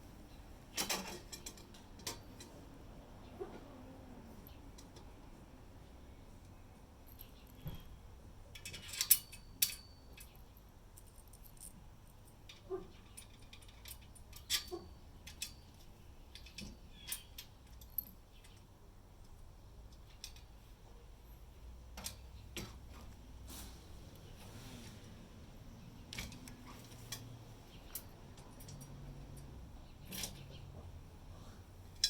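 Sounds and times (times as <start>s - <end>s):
small metal objects clinking: 8.6s - 18.5s.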